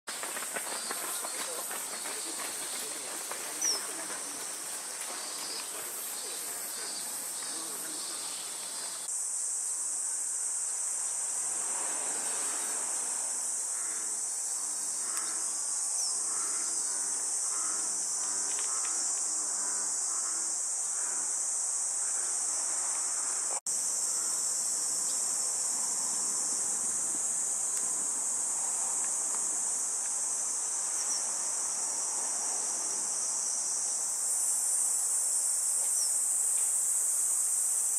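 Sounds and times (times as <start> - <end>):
insects droning: 0.1 - 37.9.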